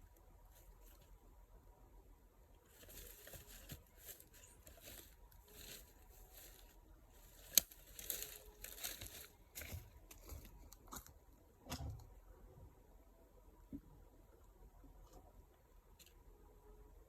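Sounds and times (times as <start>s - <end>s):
faint rustling and scuffing: 2.7s - 11.1s.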